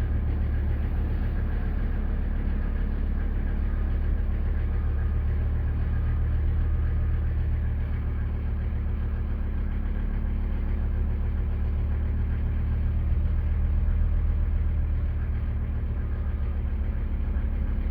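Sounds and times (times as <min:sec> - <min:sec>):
diesel engine idling: 0:00.0 - 0:17.9.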